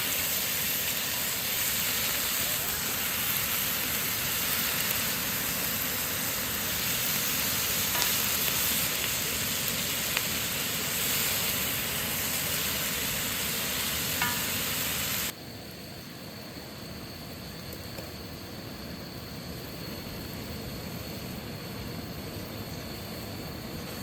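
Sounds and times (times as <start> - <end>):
food sizzling in a pan: 0.0 - 15.4.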